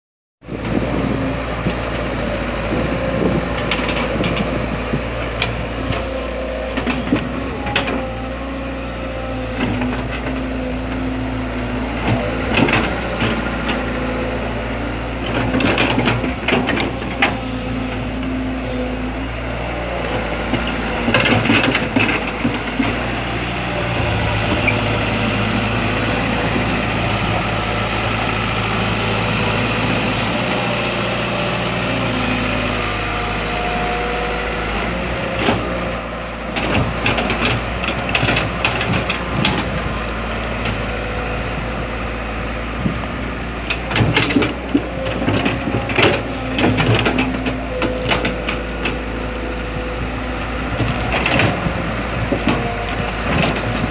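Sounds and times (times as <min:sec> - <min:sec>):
excavator diesel engine running: 0:00.4 - 0:53.9.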